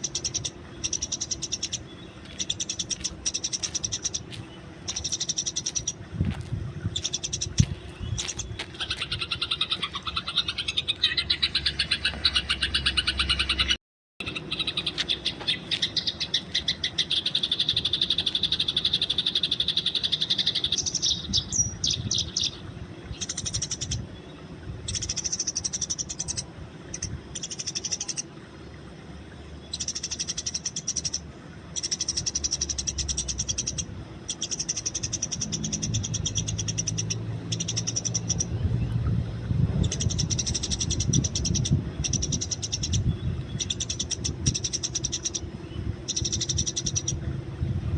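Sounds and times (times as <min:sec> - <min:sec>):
sparrows chirping: 0:00.0 - 0:28.4, 0:29.4 - 0:47.3
low background rumble: 0:00.0 - 0:47.9.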